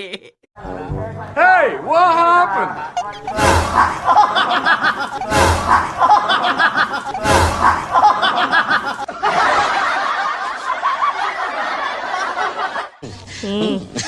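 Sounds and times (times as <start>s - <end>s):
canned laughter: 2.8s - 14.0s.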